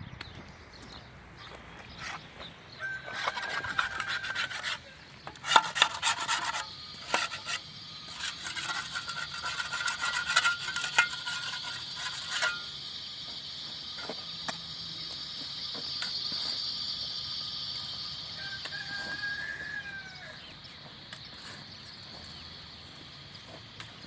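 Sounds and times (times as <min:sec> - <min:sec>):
spade cutting through soil: 0:03.0 - 0:14.6
steady high-pitched drone: 0:03.0 - 0:24.0.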